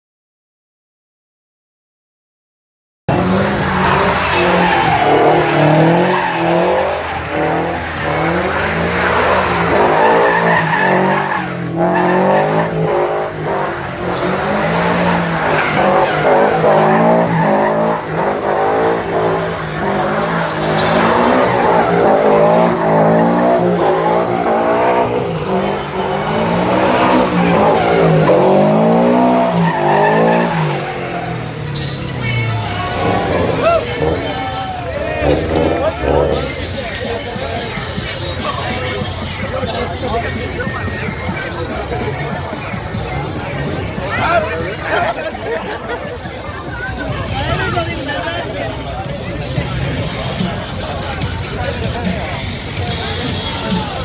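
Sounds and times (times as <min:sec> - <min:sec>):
car tyres squealing: 0:03.1 - 0:45.8.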